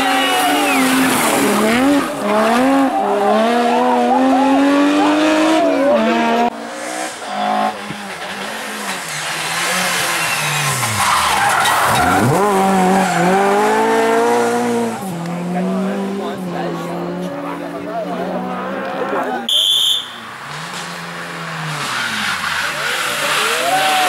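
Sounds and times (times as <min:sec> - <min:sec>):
rally car engine revving: 0:00.0 - 0:19.5, 0:20.2 - 0:24.0.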